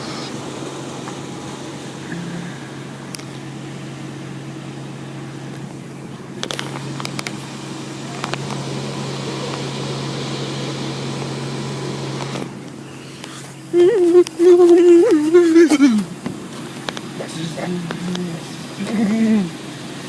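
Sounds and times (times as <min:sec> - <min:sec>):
car wash motor hum: 0:00.0 - 0:20.0
machinery clicks: 0:05.5 - 0:08.7.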